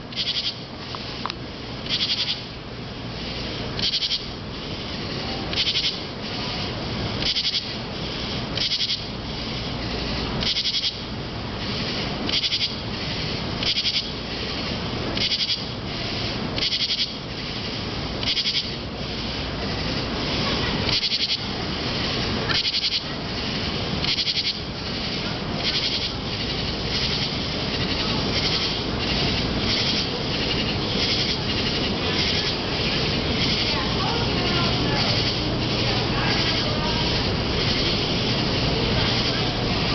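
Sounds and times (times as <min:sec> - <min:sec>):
raspy high-pitched call: 0:00.1 - 0:00.7, 0:01.8 - 0:02.5, 0:03.8 - 0:04.4, 0:05.0 - 0:06.5, 0:07.2 - 0:07.8, 0:08.6 - 0:09.1, 0:09.8 - 0:11.1, 0:12.3 - 0:14.5, 0:15.2 - 0:17.6, 0:18.2 - 0:18.9, 0:19.8 - 0:39.9.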